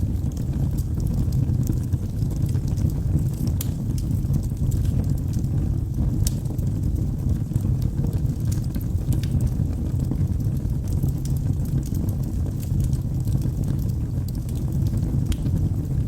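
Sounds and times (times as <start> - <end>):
logs crackling and popping: 0.0 - 16.0
low rumble of flames: 0.0 - 16.0.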